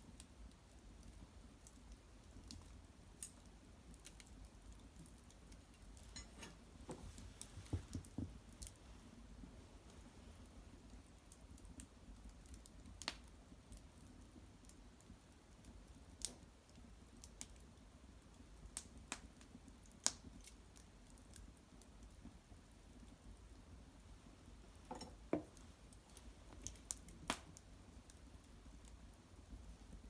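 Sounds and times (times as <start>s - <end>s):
wood fire crackling: 0.0s - 30.0s
sharp pops of fire: 16.0s - 17.6s, 24.7s - 28.6s.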